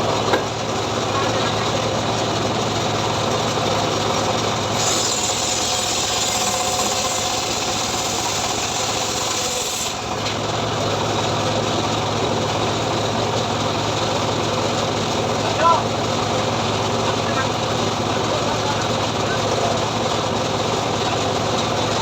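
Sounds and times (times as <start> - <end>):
sawmill engine running: 0.0 - 22.0
saw blade ripping through log: 4.7 - 10.2.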